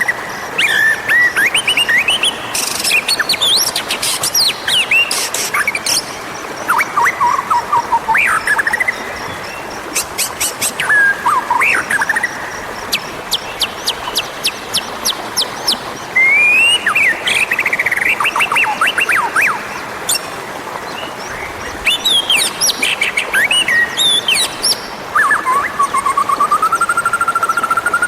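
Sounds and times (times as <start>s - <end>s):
bird singing whistled phrases: 25.2s - 28.0s.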